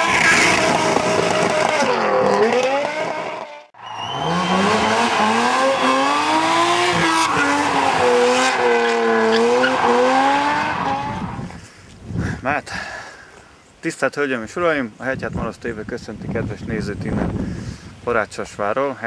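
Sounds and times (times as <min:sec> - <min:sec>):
car engine revving hard: 0:00.0 - 0:11.5
tyres squealing: 0:03.9 - 0:11.2.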